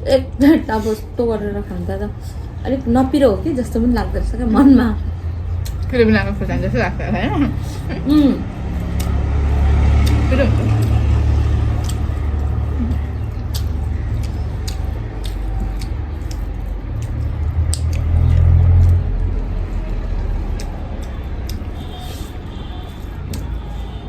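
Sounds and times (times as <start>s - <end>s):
road traffic rumble: 0.0s - 24.0s
chewing with wet mouth clicks: 5.0s - 6.0s, 7.5s - 24.0s.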